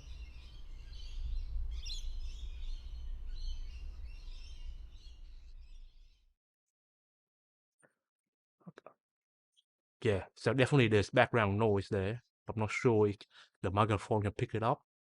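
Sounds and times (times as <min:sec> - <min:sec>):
birds chirping: 0:00.0 - 0:05.5.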